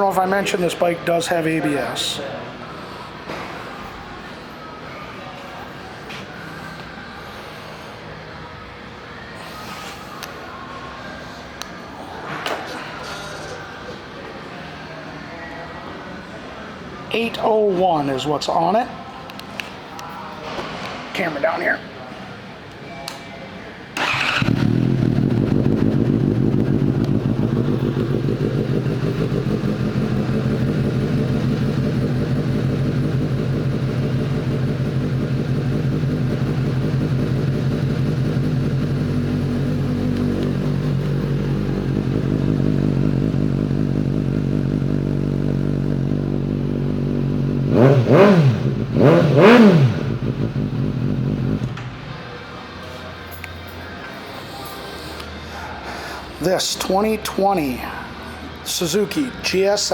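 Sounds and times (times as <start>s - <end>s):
motorcycle engine idling: 24.0s - 52.0s
motorcycle throttle blips: 24.0s - 52.2s.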